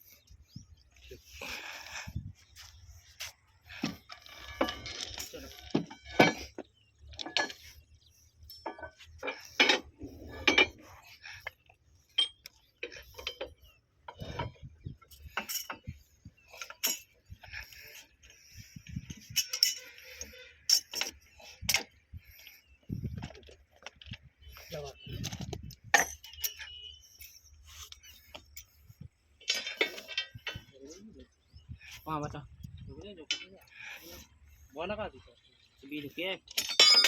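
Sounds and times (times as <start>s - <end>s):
metallic clinks of hand tools: 19.1s - 21.9s, 25.3s - 28.7s, 36.5s - 37.0s.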